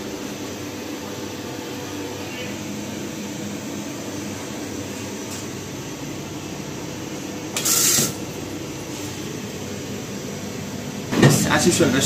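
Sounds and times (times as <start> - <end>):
loud hiss: 7.6 - 8.2.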